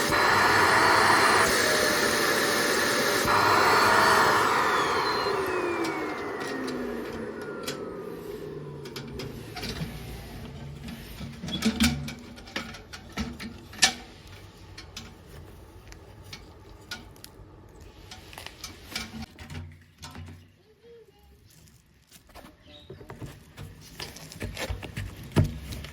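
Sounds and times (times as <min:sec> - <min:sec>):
vacuum cleaner motor spinning down: 0:00.0 - 0:11.3.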